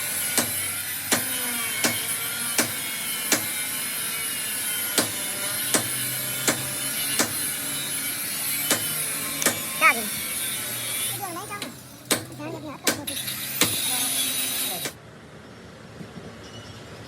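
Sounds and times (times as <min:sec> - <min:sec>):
steady background hum: 0:00.0 - 0:15.0
hammer blows: 0:08.4 - 0:15.0.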